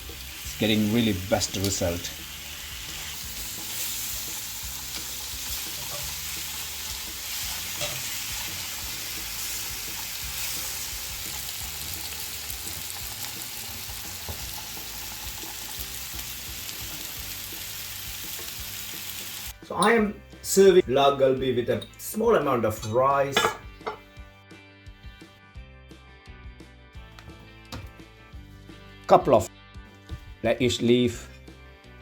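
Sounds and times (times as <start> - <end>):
meat sizzling in a skillet: 0.0 - 19.6
small pops of frying fat: 12.6 - 16.2.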